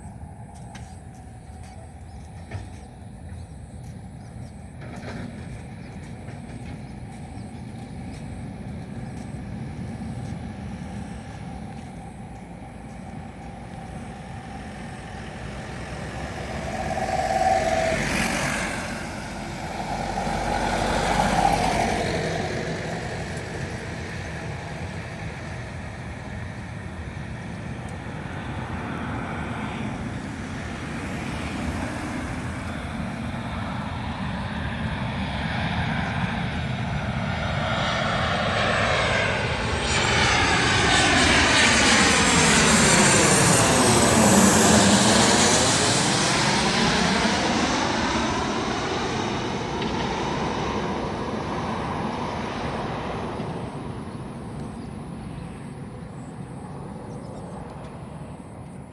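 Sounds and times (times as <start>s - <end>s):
airplane engines approaching: 0.0s - 58.9s
sweeping falling tone: 14.5s - 24.1s.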